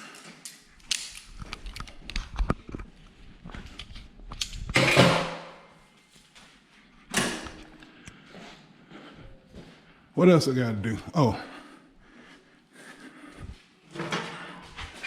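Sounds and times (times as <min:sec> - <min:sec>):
metal pliers clicking and clattering: 0:00.1 - 0:02.4.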